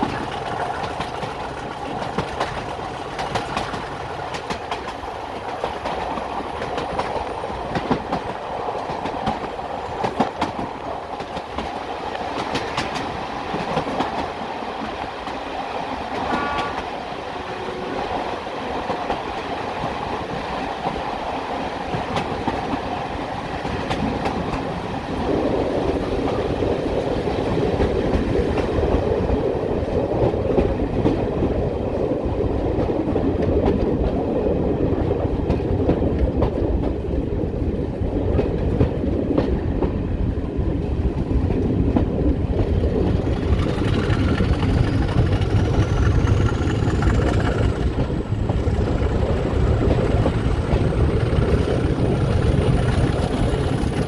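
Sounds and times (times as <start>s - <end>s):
train wheels clicking over rail joints: 0.0s - 16.9s, 18.8s - 31.4s, 40.8s - 54.0s
diesel train rumble: 0.0s - 32.2s, 40.1s - 54.0s.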